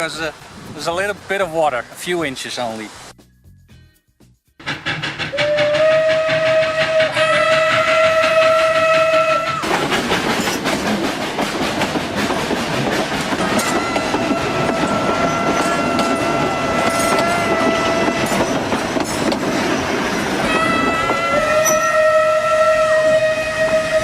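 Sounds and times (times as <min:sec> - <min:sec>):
train wheels clattering on rails: 0:04.6 - 0:22.2
train horn long blast: 0:05.3 - 0:09.7, 0:13.4 - 0:18.6, 0:20.5 - 0:24.0.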